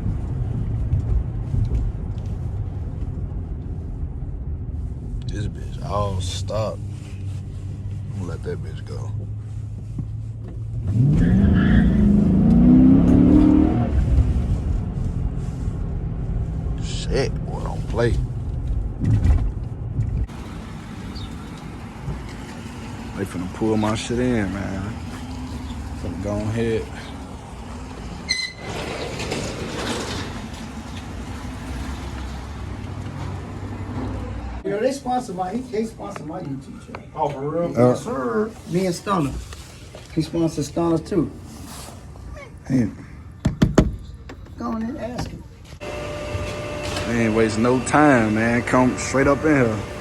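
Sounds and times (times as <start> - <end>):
car engine accelerating: 0.0 - 28.3, 45.8 - 50.0.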